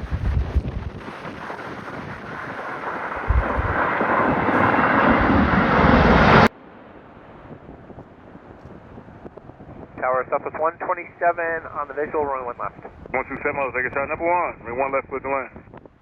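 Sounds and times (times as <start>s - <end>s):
jet engines rushing: 0.0s - 15.1s
wind buffeting microphone: 0.0s - 16.0s.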